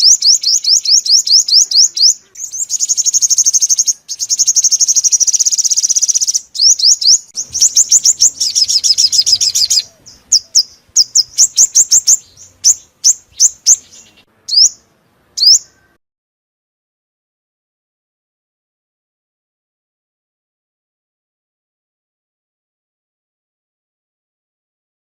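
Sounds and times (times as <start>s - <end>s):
bird singing trills and calls: 0.0s - 16.0s.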